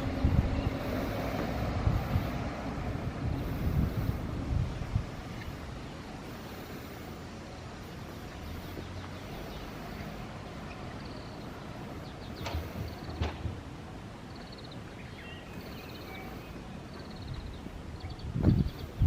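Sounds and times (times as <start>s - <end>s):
outdoor background hiss: 0.0s - 19.0s
faint bird chirps: 14.3s - 19.0s.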